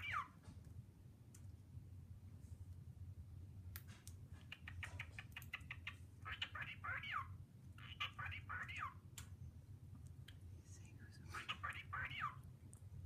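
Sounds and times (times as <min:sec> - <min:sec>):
cockatiel warbling: 0:04.5 - 0:09.0, 0:11.4 - 0:12.4.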